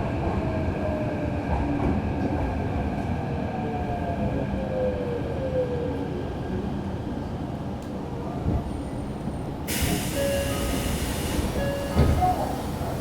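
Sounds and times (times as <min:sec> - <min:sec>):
wheels rumbling on rail: 0:05.9 - 0:13.0.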